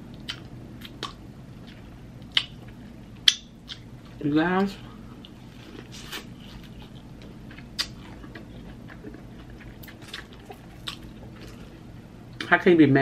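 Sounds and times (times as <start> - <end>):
quiet chewing: 0.1 - 12.5
mouth clicks and smacks: 7.7 - 9.1.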